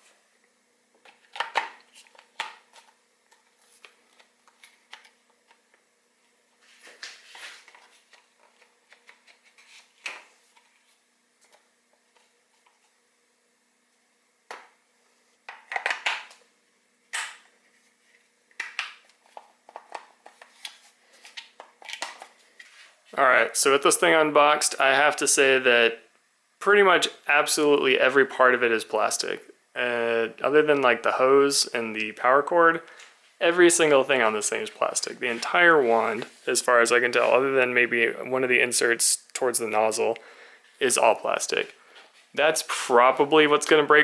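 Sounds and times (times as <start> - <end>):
faint steady hum: 0.0 - 44.0
plastic parts clicking and knocking: 15.5 - 16.4.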